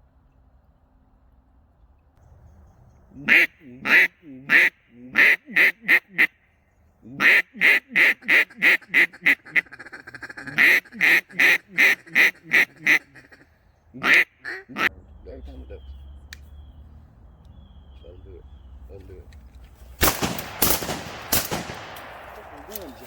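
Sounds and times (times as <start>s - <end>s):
duck quacking: 3.1s - 6.4s, 7.0s - 15.0s.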